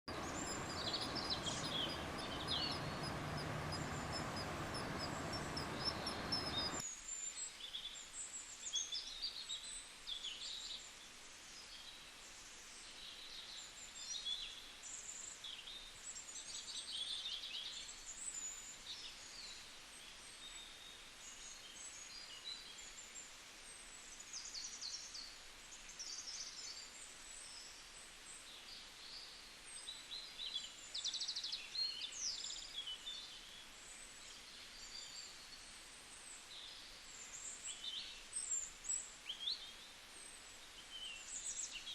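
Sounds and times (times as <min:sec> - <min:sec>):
birds chirping: 0:00.0 - 0:06.8
loud hiss-like background noise: 0:00.0 - 0:41.9.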